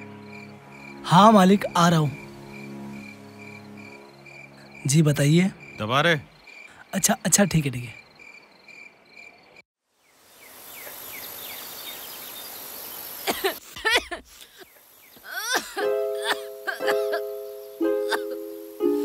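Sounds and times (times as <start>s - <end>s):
plucked-string background music: 0.0s - 6.2s, 15.8s - 19.0s
crickets chirping: 0.0s - 19.0s
high steady hiss: 9.9s - 19.0s
chirping calls: 16.0s - 19.0s.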